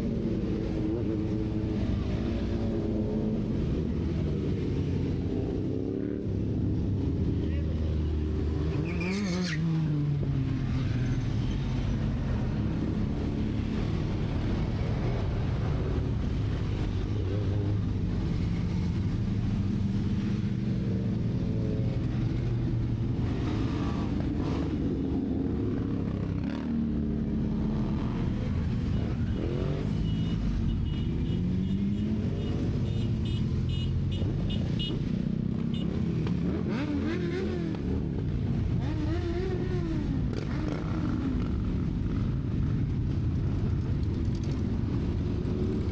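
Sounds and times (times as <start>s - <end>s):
motorcycle engine revving: 35.6s - 38.1s.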